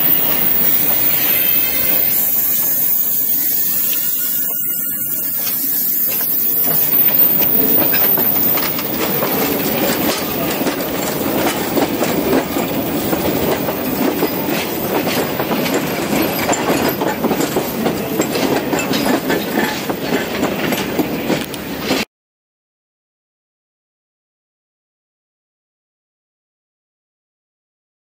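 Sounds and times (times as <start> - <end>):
train wheels clattering on track: 0.0 - 22.1.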